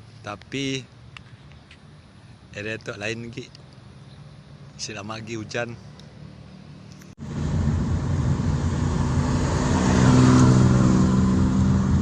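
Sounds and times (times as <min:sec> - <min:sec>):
vehicle engine running: 0:06.7 - 0:12.0.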